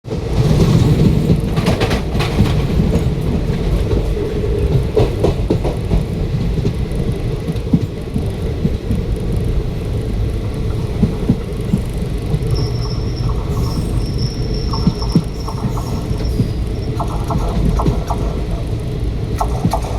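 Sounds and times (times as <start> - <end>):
train rumbling on rails: 0.0 - 19.9
wheel clicks over rail joints: 10.6 - 18.8
thin high squeal: 12.5 - 16.6.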